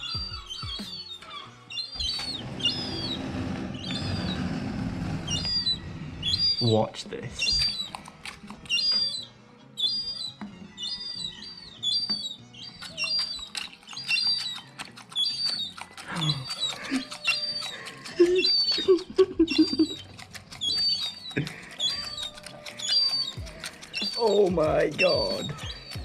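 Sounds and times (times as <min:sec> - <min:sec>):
gull chicks peeping: 0:00.0 - 0:04.4, 0:05.2 - 0:26.0
low wavering calls: 0:00.0 - 0:26.0
sharp clicks: 0:07.4 - 0:09.2.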